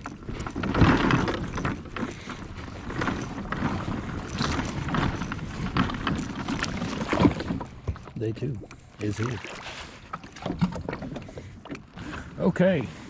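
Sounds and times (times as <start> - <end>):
rustling of gear being handled: 0.0 - 8.0
bumps and knocks on kayak: 0.0 - 8.2.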